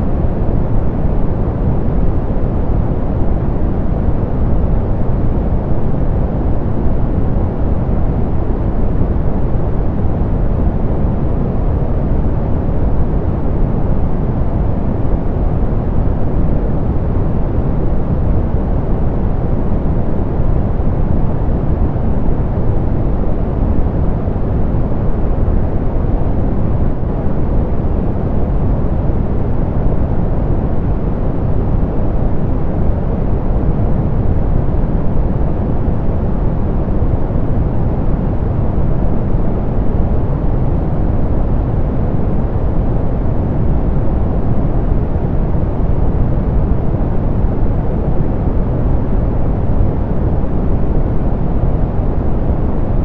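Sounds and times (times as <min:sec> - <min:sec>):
soft pink noise rush: 0:00.0 - 0:53.0.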